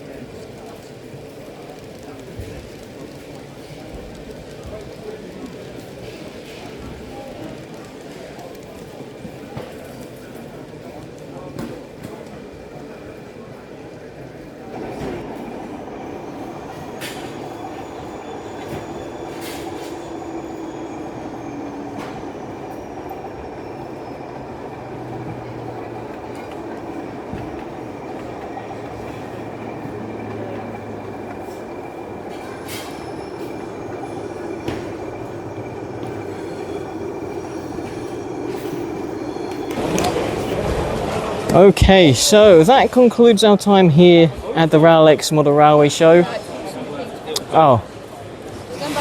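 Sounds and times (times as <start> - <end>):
wheels clicking over rail joints: 0.0 - 12.4, 14.7 - 41.6
model train running rumble: 0.0 - 49.0
faint high squeal: 15.3 - 40.6.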